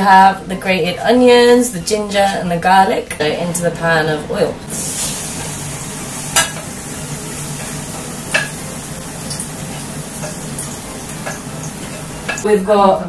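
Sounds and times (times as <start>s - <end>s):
food sizzling in hot oil: 4.6s - 12.5s
spatula knocking pan: 7.6s - 9.4s.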